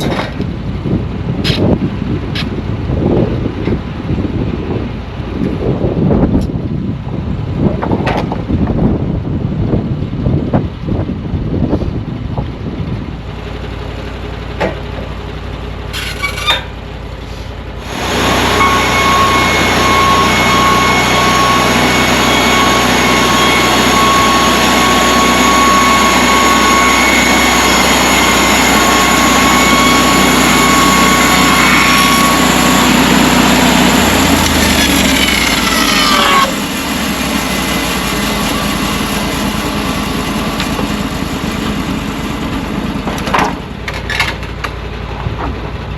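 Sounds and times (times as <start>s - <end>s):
gas engine running: 13.5s - 45.9s
band saw blade whining: 15.8s - 44.4s.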